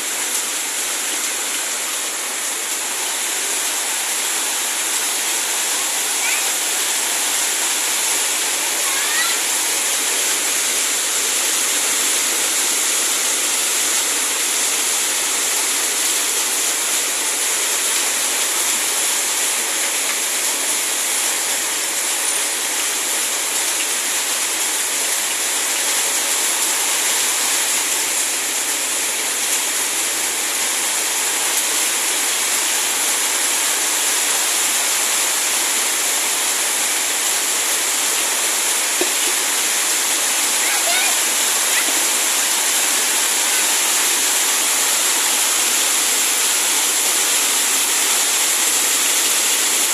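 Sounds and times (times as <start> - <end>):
heavy rain pouring: 0.0 - 49.9.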